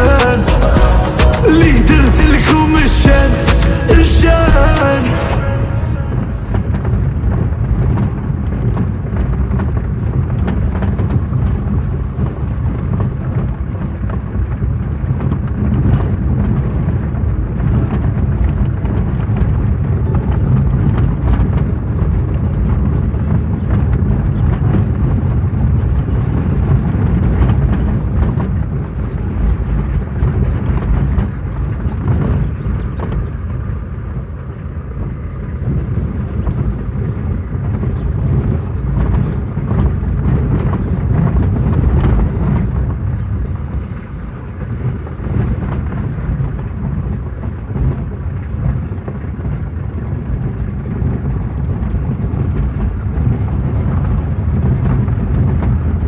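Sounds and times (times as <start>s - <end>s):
loud low rumbling noise: 0.0s - 32.0s.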